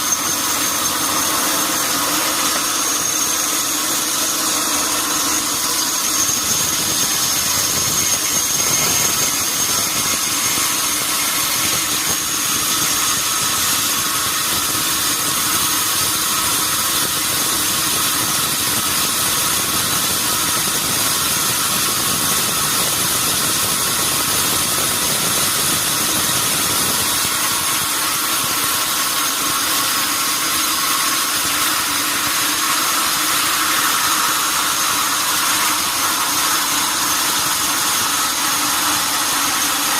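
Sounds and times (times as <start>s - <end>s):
high-pitched machine tones: 0.0s - 13.7s
sawmill machinery running: 0.0s - 39.9s.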